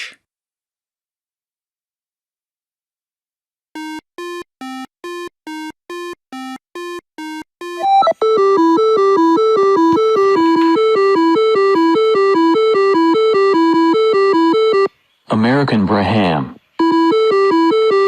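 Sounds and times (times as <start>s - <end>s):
short electronic beeps: 5.1s - 14.9s
synthesizer music: 7.2s - 14.9s.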